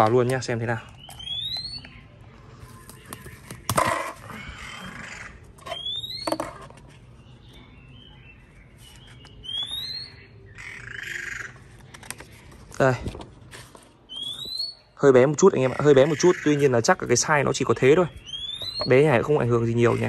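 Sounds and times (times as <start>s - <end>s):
soft bird chirps: 0.0s - 12.9s, 13.7s - 20.0s
bird rising whistle: 5.8s - 6.4s, 9.4s - 10.2s, 14.1s - 14.8s, 18.2s - 18.9s
paper rustling: 11.8s - 14.0s.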